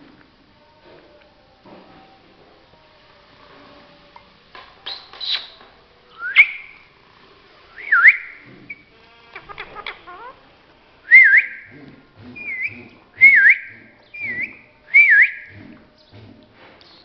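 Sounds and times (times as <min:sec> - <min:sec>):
parrot whistling: 0:06.2 - 0:06.8, 0:07.8 - 0:08.9, 0:11.1 - 0:11.7, 0:12.3 - 0:15.5.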